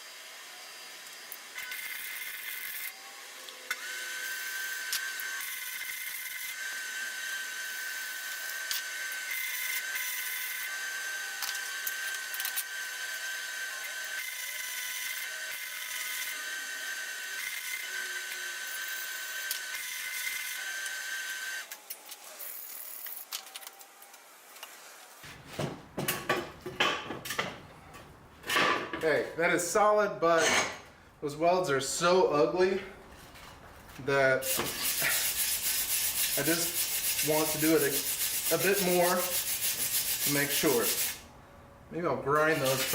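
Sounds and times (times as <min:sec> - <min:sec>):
knocks and clatter: 0:25.3 - 0:29.0
arc welding crackling hiss: 0:34.4 - 0:41.2, 0:42.4 - 0:42.9.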